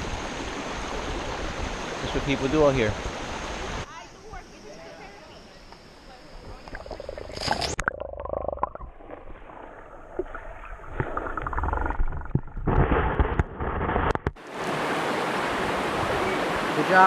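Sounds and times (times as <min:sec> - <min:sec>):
stream rushing: 0:00.0 - 0:03.9, 0:14.4 - 0:17.0
underwater river gurgling: 0:06.3 - 0:17.0
knocks underwater: 0:07.8 - 0:14.4.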